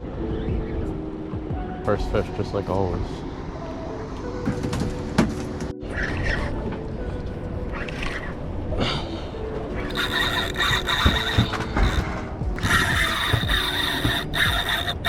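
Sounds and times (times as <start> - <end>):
low rumble of boat: 0.0 - 15.0
fishing reel drag squealing: 9.8 - 15.0.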